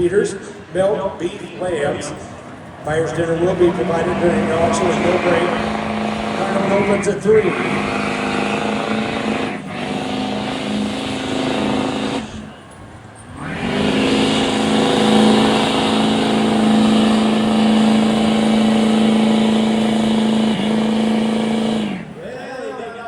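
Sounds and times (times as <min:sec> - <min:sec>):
diesel truck engine revving hard: 0:00.0 - 0:23.0.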